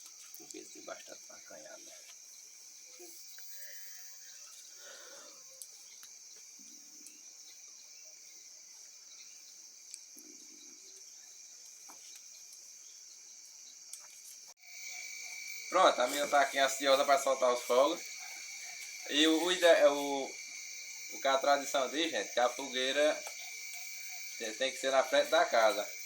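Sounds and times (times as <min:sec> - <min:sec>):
crickets chirring: 0:00.0 - 0:26.0.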